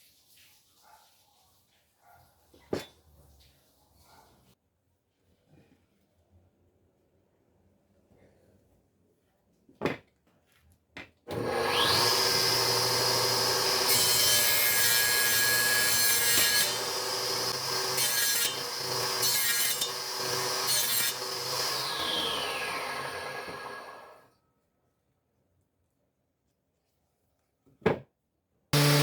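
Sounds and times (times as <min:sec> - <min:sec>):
power tool whining through wood: 0:11.3 - 0:24.2, 0:28.8 - 0:29.0.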